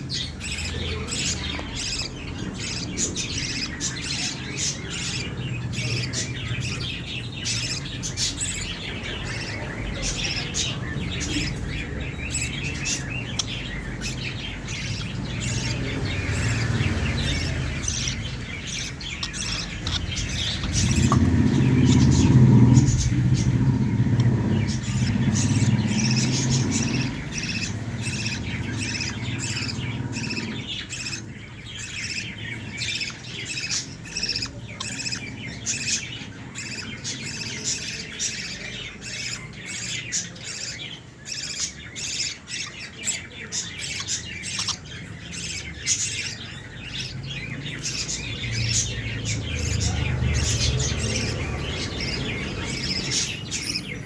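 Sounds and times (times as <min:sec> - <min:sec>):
small birds chirping and squawking: 0:00.0 - 0:54.0
low rumble: 0:19.6 - 0:30.2.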